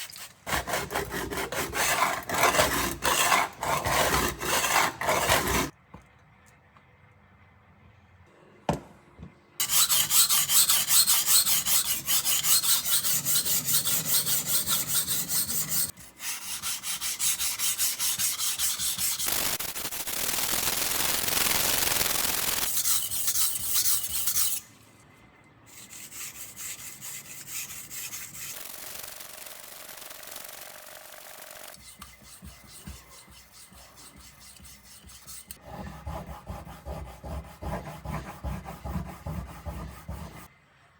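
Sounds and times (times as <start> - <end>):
blade scraping on whetstone: 0.2 - 5.7, 9.6 - 19.3, 22.7 - 24.7.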